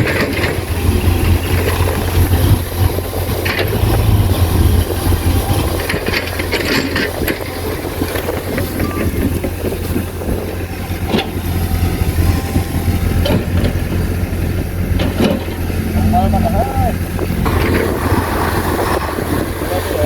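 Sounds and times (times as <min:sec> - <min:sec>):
heavy diesel engine running: 0:00.0 - 0:20.0
metal knocks and clanks: 0:14.9 - 0:15.8.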